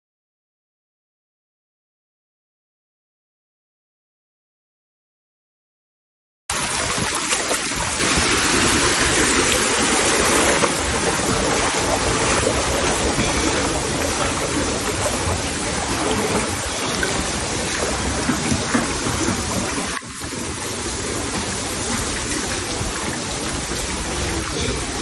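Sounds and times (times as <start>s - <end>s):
floodwater rushing and splashing: 6.5s - 25.0s.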